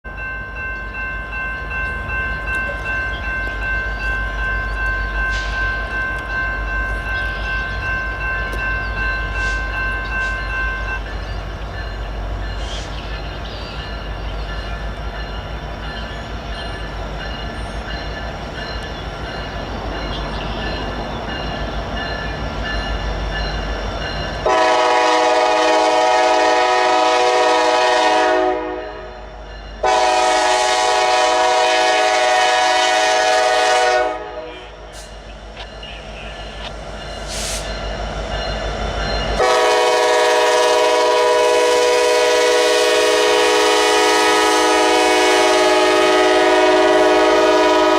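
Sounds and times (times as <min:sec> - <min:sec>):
train rumbling: 0:00.0 - 0:47.9
train horn blast: 0:24.4 - 0:29.2, 0:29.8 - 0:34.9, 0:39.4 - 0:47.9.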